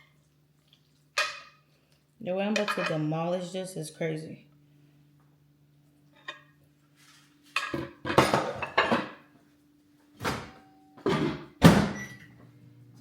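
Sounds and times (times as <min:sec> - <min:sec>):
faint steady hum: 0:00.0 - 0:13.0
dishes and cutlery clattering: 0:07.6 - 0:09.2.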